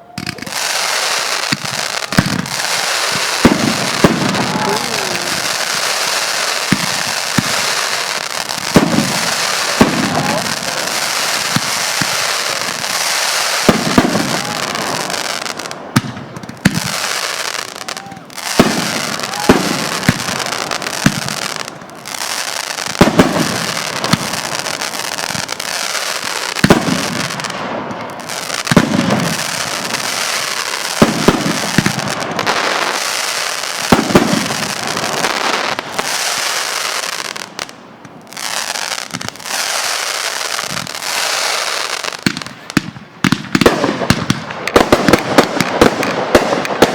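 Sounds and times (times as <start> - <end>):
fireworks banging: 0.0 - 46.9
fireworks crackling hiss: 0.0 - 46.9.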